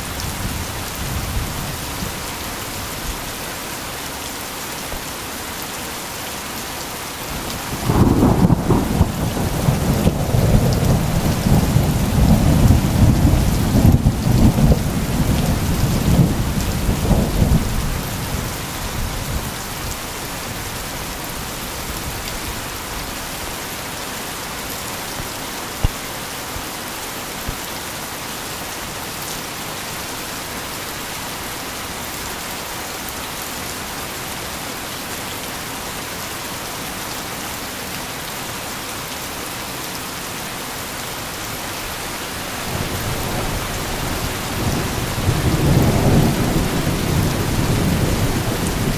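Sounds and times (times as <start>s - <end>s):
heavy rain: 0.0s - 48.9s
rolling thunder: 7.7s - 17.9s.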